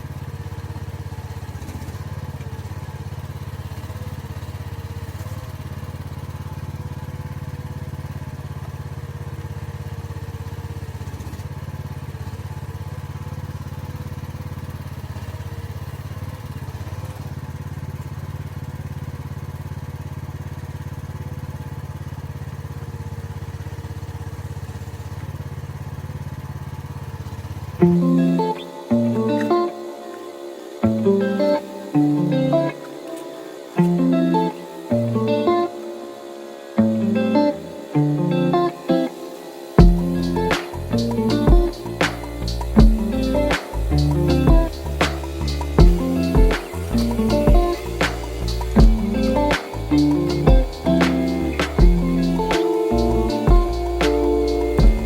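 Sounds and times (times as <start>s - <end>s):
mini excavator engine running: 0.0s - 55.0s
guitar music: 27.8s - 55.0s.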